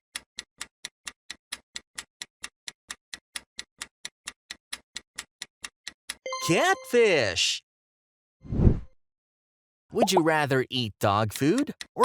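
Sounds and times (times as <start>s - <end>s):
clock ticking: 10.0s - 12.0s.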